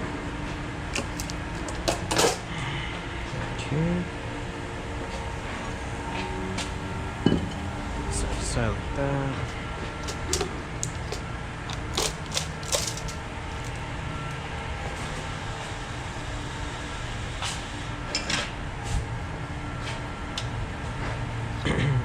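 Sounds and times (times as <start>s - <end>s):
steady shop hum: 0.0s - 22.0s
metal tools and parts clinking: 1.0s - 2.4s, 10.0s - 13.8s.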